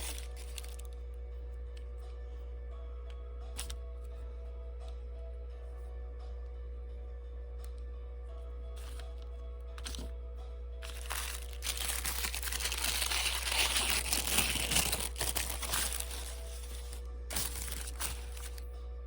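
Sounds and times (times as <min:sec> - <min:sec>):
packaging crinkling: 0:00.0 - 0:00.9, 0:10.8 - 0:18.6
soft background music: 0:00.0 - 0:19.0.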